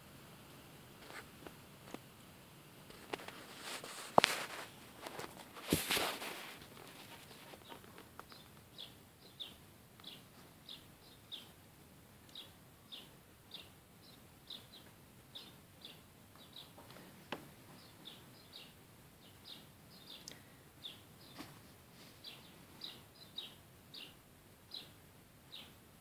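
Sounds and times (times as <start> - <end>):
bird chirping faintly: 6.8 - 11.6, 12.2 - 25.8.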